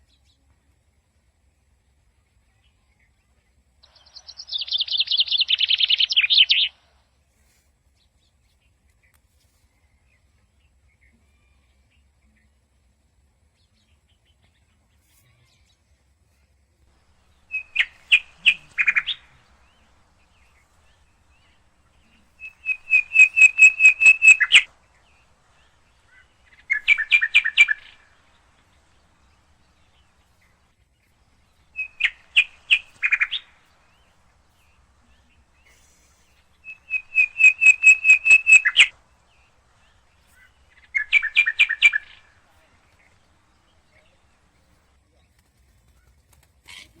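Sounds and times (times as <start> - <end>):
parakeet calling: 17.0 - 30.2, 31.4 - 35.8, 36.4 - 42.5.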